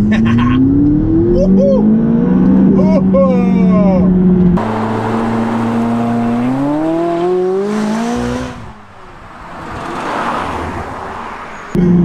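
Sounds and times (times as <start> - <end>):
car engine accelerating: 0.0 - 12.0
car passing by: 4.6 - 11.8.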